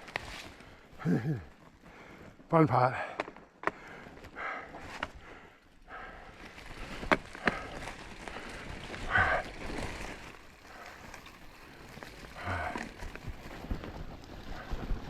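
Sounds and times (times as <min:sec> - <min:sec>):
bike tyres on dirt: 0:00.0 - 0:15.0.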